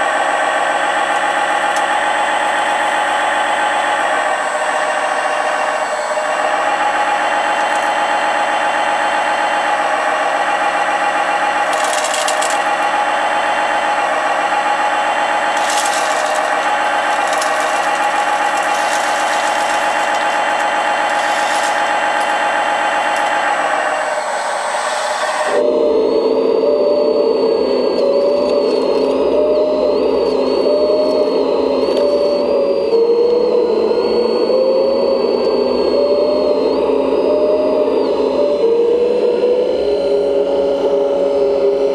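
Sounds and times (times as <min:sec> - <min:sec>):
hydraulic model whining: 0:00.5 - 0:05.7, 0:07.2 - 0:08.4, 0:11.5 - 0:13.3, 0:15.3 - 0:32.7
short rattles and clatters: 0:01.1 - 0:04.1, 0:07.6 - 0:08.0, 0:11.6 - 0:13.0, 0:15.5 - 0:23.4.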